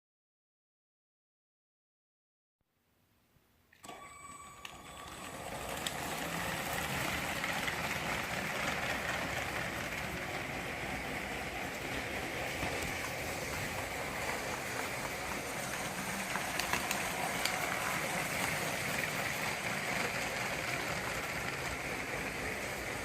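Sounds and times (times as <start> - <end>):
toy train whirring rattle: 4.7 - 23.0.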